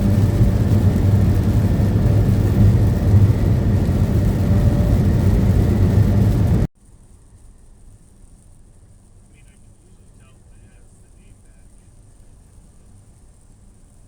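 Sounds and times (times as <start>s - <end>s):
truck engine hum: 0.0s - 6.7s, 9.1s - 14.0s
tyre and road noise: 0.0s - 6.7s
faint hiss: 6.4s - 14.0s.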